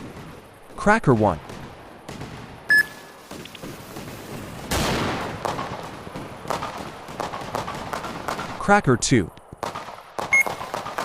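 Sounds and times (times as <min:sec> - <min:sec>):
firecracker burst: 0:01.4 - 0:08.6.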